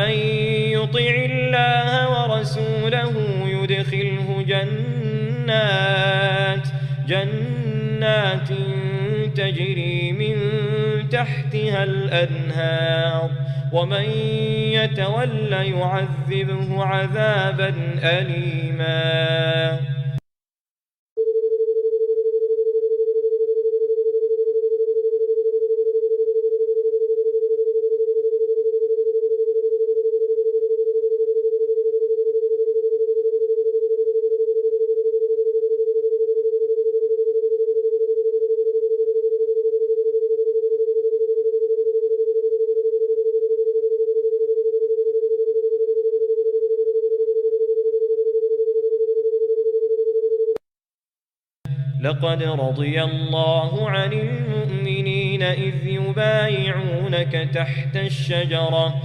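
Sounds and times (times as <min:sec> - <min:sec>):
steady electronic sine tone: 0:00.0 - 0:20.2, 0:21.2 - 0:50.6, 0:51.7 - 0:59.0.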